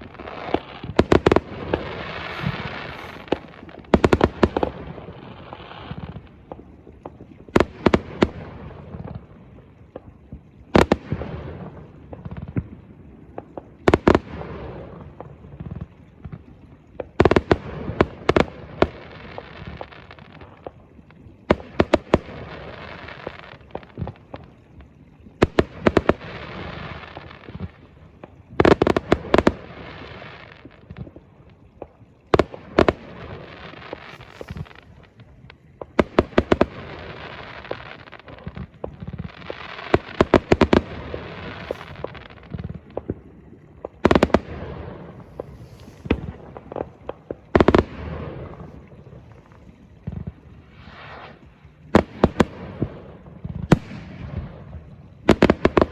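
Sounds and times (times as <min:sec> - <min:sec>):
fireworks bangs: 0:00.0 - 0:05.3, 0:32.4 - 0:35.1, 0:43.8 - 0:48.8
crackling hissing fizz: 0:00.0 - 0:55.9.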